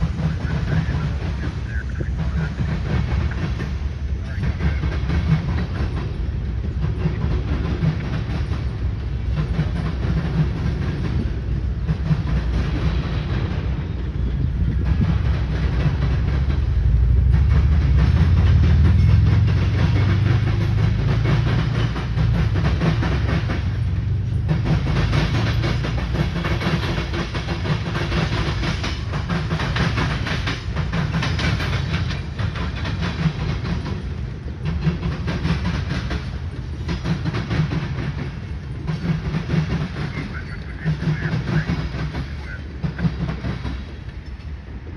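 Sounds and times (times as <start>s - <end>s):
freight train rumbling past: 0.0s - 44.9s
wheels clacking over rail joints: 0.0s - 44.9s.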